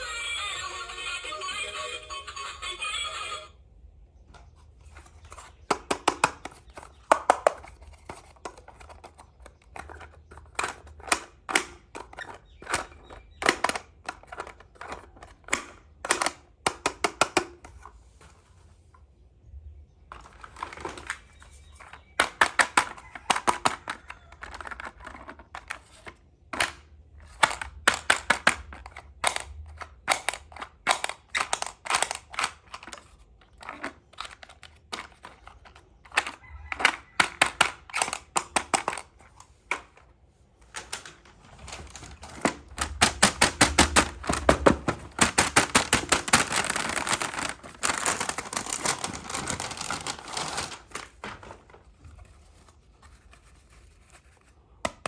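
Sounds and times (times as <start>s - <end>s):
plastic toy pieces clicking: 5.7s - 17.8s, 20.1s - 40.0s, 40.8s - 50.7s.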